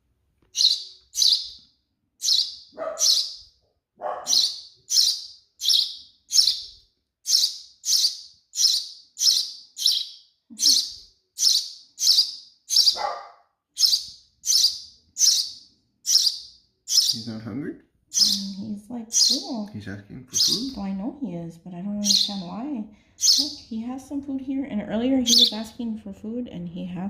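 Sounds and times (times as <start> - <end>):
baby sparrow begging chirps: 0.5 - 17.4, 18.1 - 19.7, 20.3 - 21.0, 21.9 - 23.9, 25.2 - 25.8.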